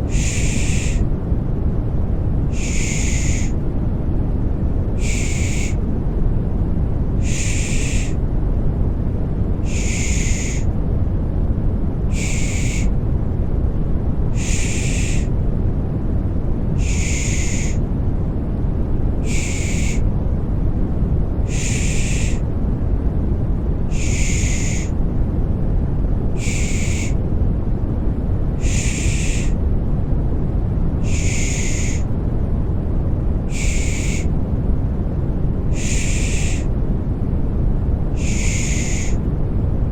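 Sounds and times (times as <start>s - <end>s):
deep white noise: 0.0s - 39.9s
person shushing: 0.1s - 1.0s, 2.6s - 3.6s, 5.0s - 5.8s, 7.2s - 8.2s, 9.7s - 10.7s, 12.1s - 12.9s, 14.4s - 15.3s, 16.8s - 17.8s, 31.0s - 32.0s, 38.2s - 39.2s.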